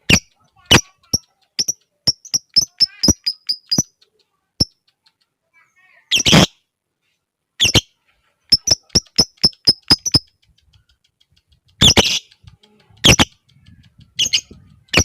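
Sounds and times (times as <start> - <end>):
lovebird ticking notes: 0.0 - 5.5, 8.5 - 15.0
lovebird shrill chirps: 0.1 - 4.0, 6.1 - 6.6, 7.6 - 7.9, 8.5 - 10.3, 11.8 - 12.3, 13.0 - 13.4, 14.2 - 15.0.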